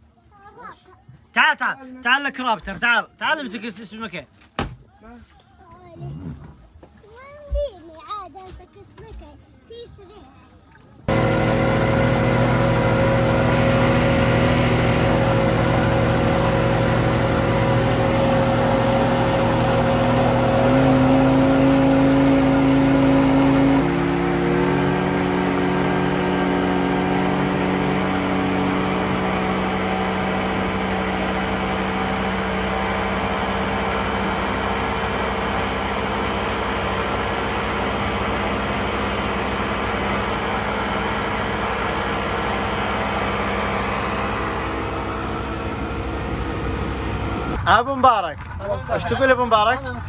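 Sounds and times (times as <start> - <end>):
motorboat engine running: 11.1 - 47.6.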